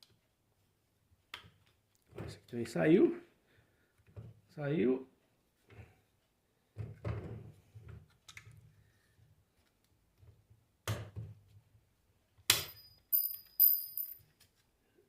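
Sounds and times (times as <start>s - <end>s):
sharp knocks on metal parts: 12.5s - 14.2s
metal clinks with ringing tail: 12.7s - 14.2s.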